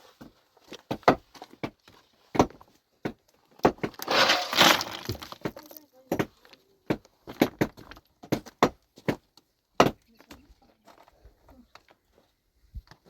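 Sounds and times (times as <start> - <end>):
rubble scraping: 3.8 - 5.9.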